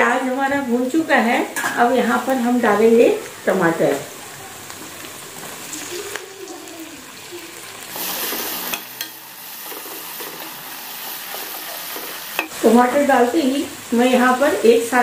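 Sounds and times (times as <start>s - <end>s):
tomatoes sizzling in hot oil: 0.0s - 15.0s.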